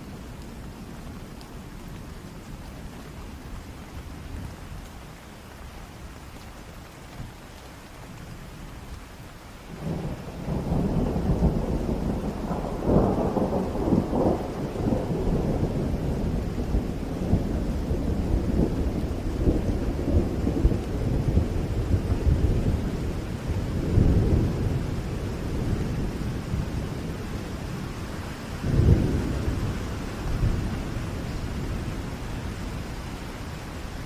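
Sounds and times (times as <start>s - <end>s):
rain falling: 0.0s - 34.0s
long roll of thunder: 9.7s - 34.0s.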